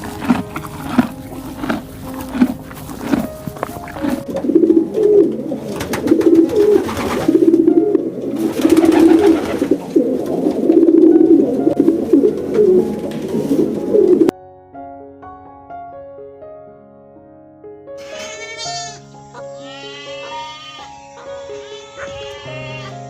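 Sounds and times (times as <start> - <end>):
birds calling in warbling phrases: 18.0 - 23.0.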